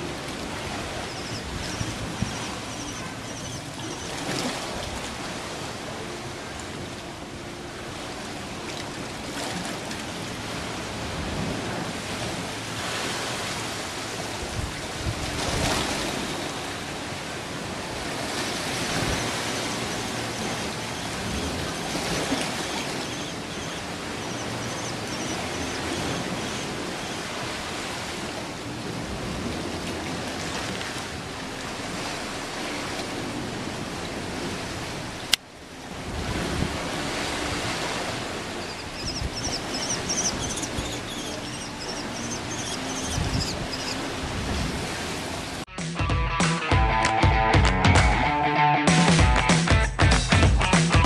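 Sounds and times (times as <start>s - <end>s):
rushing water: 0.0s - 45.7s
faint high bird calls: 1.0s - 4.2s, 19.0s - 27.4s, 38.6s - 44.0s.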